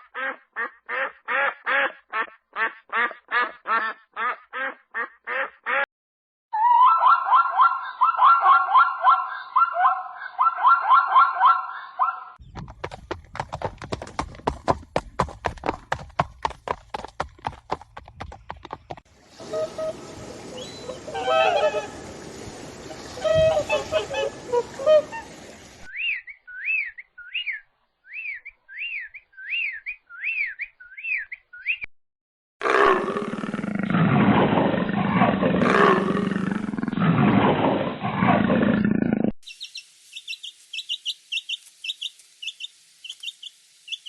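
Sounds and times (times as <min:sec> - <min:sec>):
hooves clip-clopping: 0:12.4 - 0:19.0
high chirping animal calls: 0:25.9 - 0:31.9
steady hiss: 0:39.4 - 0:44.0.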